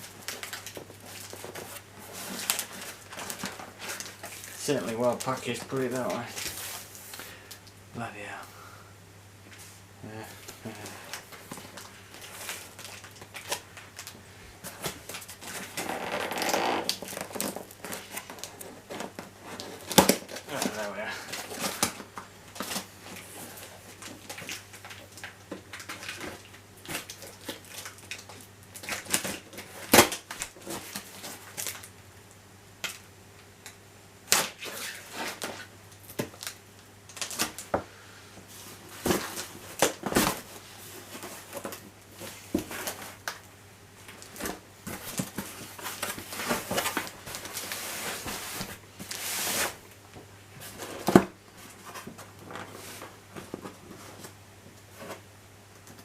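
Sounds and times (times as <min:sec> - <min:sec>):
packing material rustling: 0:00.0 - 0:07.2, 0:10.7 - 0:31.9, 0:44.0 - 0:49.9.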